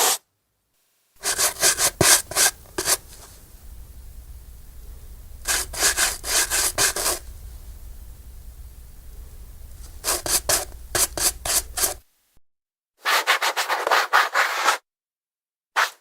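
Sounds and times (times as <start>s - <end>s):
brush scrubbing a shoe: 1.2s - 3.4s, 5.4s - 7.3s, 9.8s - 12.0s.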